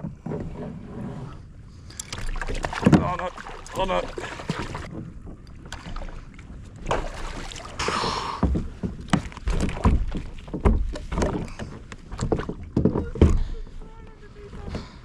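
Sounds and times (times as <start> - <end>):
water sloshing and splashing: 0.0 - 14.7
knocks against kayak hull: 2.6 - 5.0, 8.4 - 13.4.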